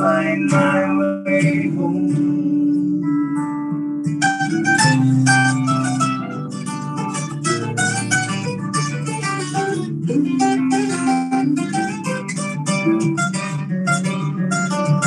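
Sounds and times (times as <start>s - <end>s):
picked guitar notes: 0.0s - 15.0s.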